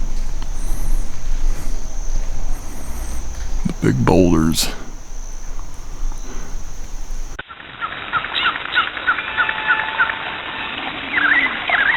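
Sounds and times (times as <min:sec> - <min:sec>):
songbird chirps: 0:00.0 - 0:07.4
steady background hiss: 0:00.0 - 0:07.4.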